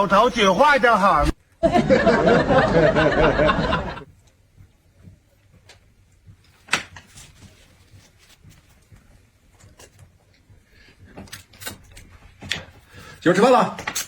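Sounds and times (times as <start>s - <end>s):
person's voice: 0.0s - 1.4s
faint clicks and knocks: 4.0s - 12.9s.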